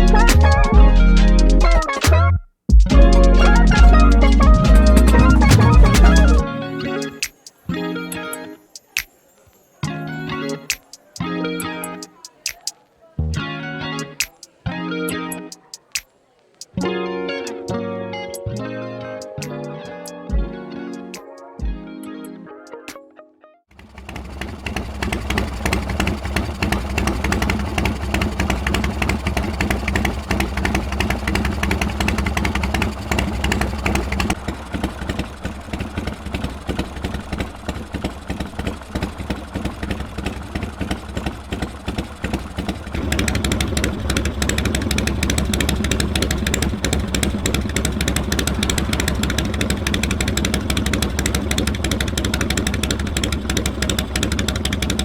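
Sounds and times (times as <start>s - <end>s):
motorcycle engine running: 3.0s - 6.4s, 23.8s - 55.0s.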